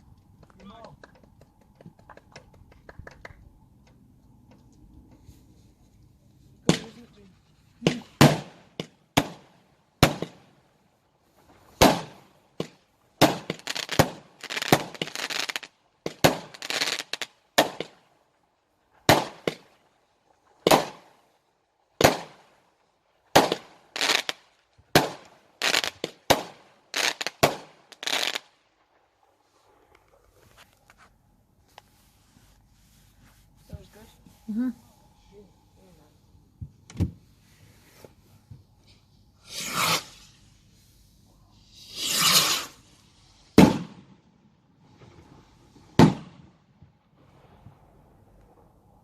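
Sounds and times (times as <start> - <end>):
fireworks bangs: 6.6 - 10.6, 11.5 - 18.0, 19.0 - 19.8, 20.6 - 21.2, 22.0 - 22.5, 23.3 - 28.5, 39.4 - 40.6, 41.5 - 48.6.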